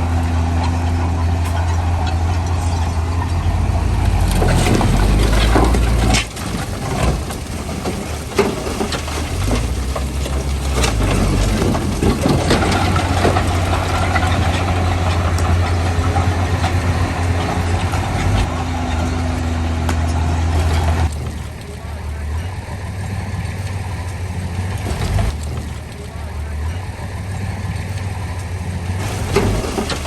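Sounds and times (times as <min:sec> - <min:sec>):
heavy diesel engine running: 0:00.0 - 0:30.0
sharp knocks and clanks: 0:00.4 - 0:21.8.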